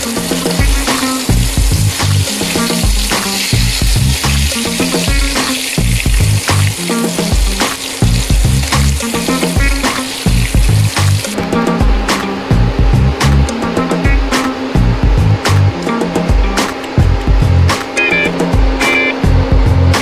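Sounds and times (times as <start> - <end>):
potatoes sizzling in oil: 0.0 - 11.4.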